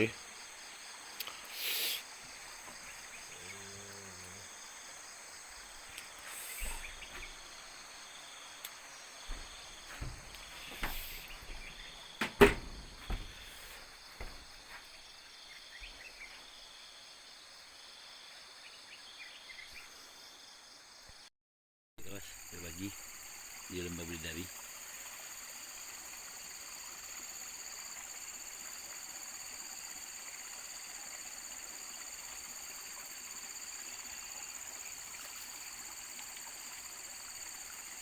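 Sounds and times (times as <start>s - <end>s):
high-pitched insect chorus: 0.0s - 21.0s, 22.1s - 38.0s
dull knocks: 6.6s - 7.5s, 9.3s - 14.9s.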